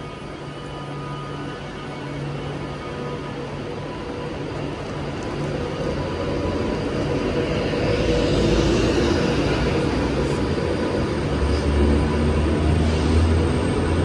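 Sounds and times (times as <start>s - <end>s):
electric train accelerating: 0.0s - 14.0s.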